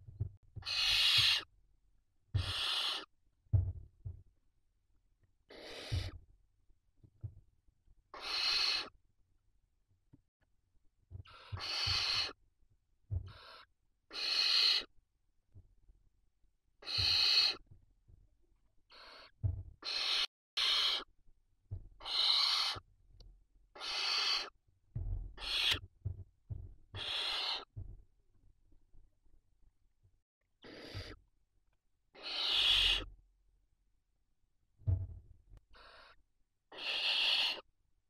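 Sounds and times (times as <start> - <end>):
owl chicks hissing begging calls: 0.6 - 1.5, 2.4 - 3.1, 5.5 - 6.2, 8.1 - 8.9, 11.3 - 12.4, 13.3 - 14.9, 16.8 - 17.6, 18.9 - 21.1, 22.0 - 22.8, 23.8 - 24.6, 25.4 - 25.8, 27.0 - 27.7, 30.6 - 31.2, 32.1 - 33.1, 35.8 - 37.7
low thumps: 3.5 - 4.2, 34.8 - 35.2.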